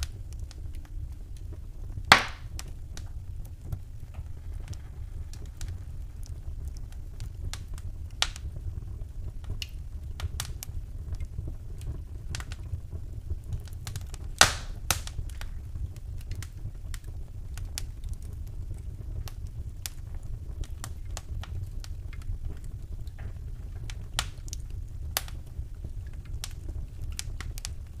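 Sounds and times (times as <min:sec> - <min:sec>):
steady low rumble: 0:00.0 - 0:16.9
wood fire crackling: 0:00.0 - 0:28.0
loud fire pop: 0:02.0 - 0:02.7, 0:14.4 - 0:15.1.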